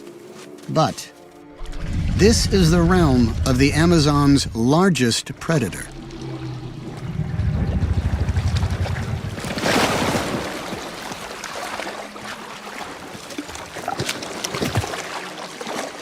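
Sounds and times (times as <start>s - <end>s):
water splashing and sloshing: 1.2s - 16.0s
low throbbing rumble: 1.6s - 10.7s.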